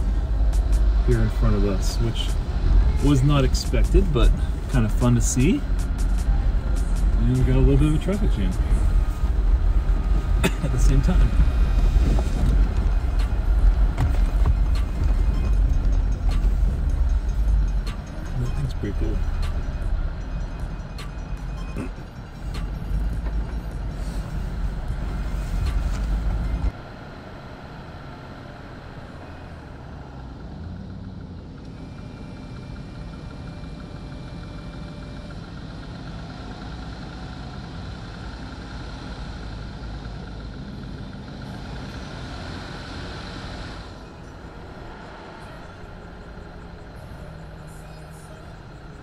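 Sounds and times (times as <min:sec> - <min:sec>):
heavy low rumble: 0:00.0 - 0:26.7
car engine idling: 0:00.0 - 0:49.0.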